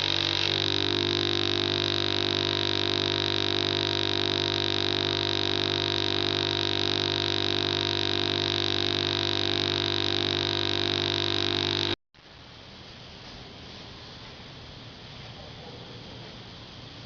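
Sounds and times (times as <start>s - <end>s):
drone of held tones: 0.0s - 12.0s.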